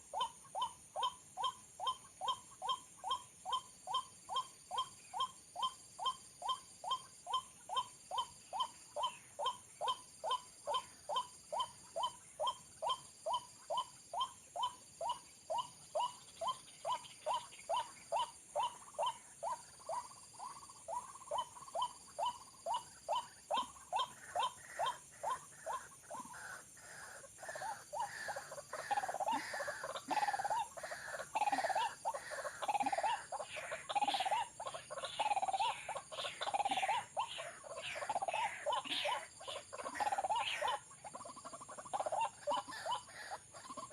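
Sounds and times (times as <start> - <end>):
waterhen calling: 17.0 - 43.9.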